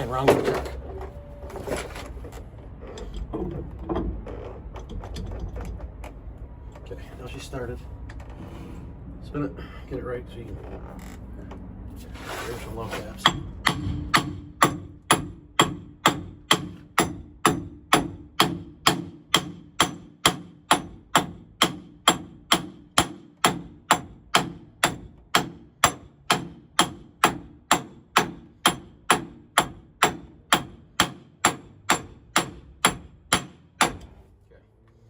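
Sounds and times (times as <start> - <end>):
hammer tapping metal: 13.2 - 34.1.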